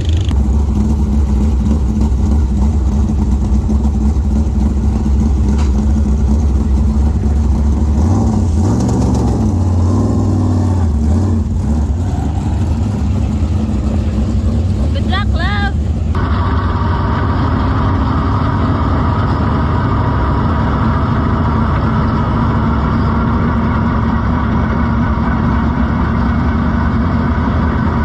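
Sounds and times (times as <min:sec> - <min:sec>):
race car engine running: 0:00.0 - 0:28.0.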